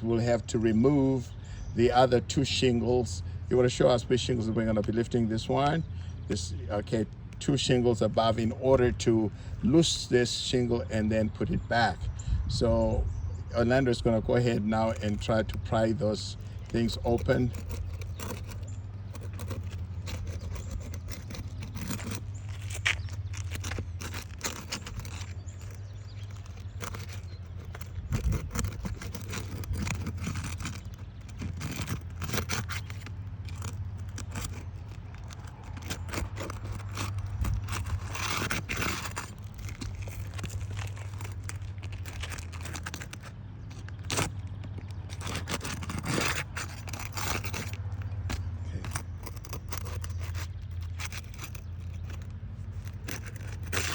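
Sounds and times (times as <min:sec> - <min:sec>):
crowbar scraping shingles: 0:13.6 - 0:53.9.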